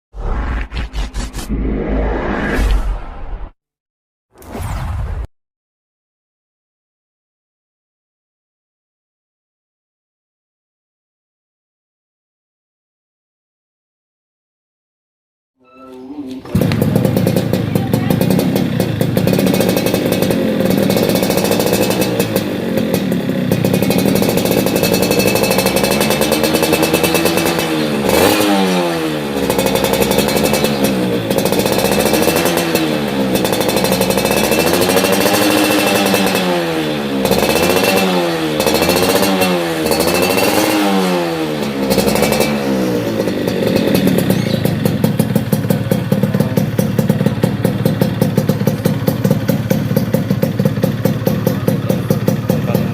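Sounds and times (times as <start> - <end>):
two-stroke motorcycle engine revving: 16.3 - 52.9.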